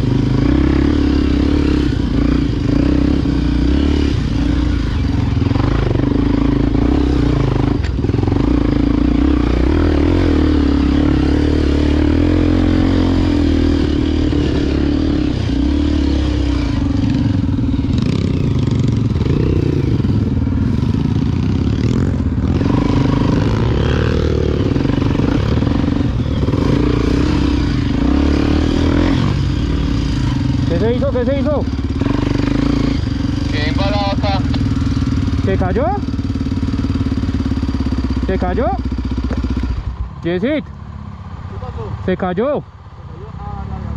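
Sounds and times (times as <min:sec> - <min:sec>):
dirt bike engine running: 0:00.0 - 0:42.7.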